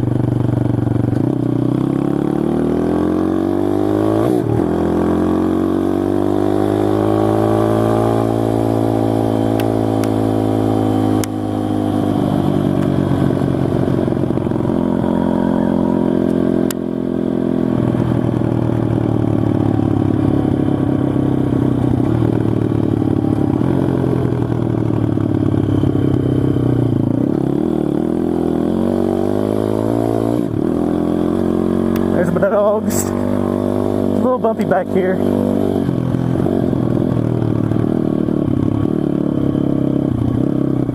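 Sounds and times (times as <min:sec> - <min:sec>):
pit bike engine running: 0:00.0 - 0:40.9.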